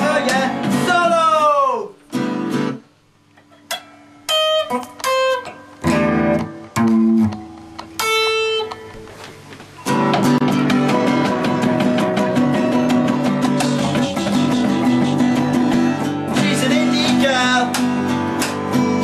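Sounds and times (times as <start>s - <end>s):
guitar strumming: 0.0s - 19.0s
plucked guitar notes: 3.4s - 9.1s, 9.8s - 19.0s.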